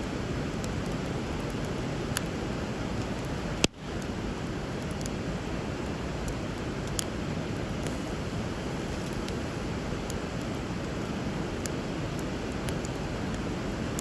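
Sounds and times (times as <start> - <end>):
bonfire crackling and popping: 0.0 - 14.0
river water rushing: 6.6 - 14.0.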